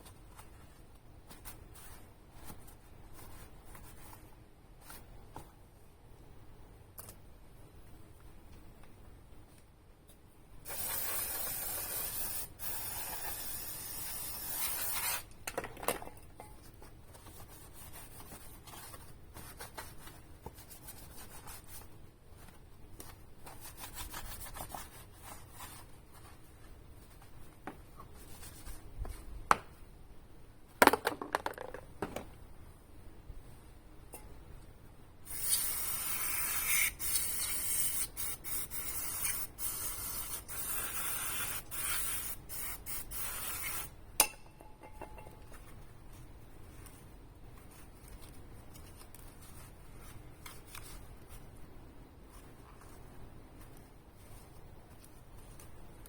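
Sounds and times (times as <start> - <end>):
aerosol can spraying: 10.7 - 15.3, 35.3 - 43.9.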